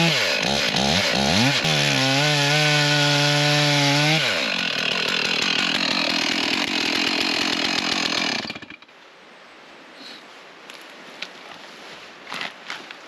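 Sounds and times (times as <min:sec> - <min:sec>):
chainsaw cutting wood: 0:00.0 - 0:08.9.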